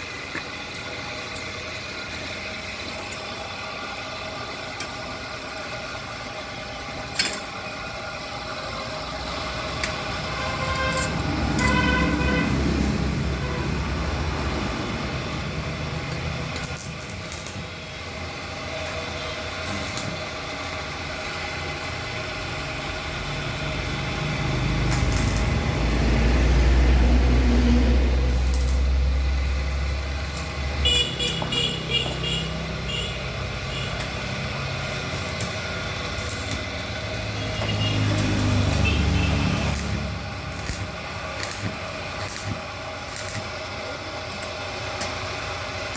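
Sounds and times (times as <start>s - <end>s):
engine rumbling: 0.0s - 45.9s
short horn toots: 10.3s - 12.7s.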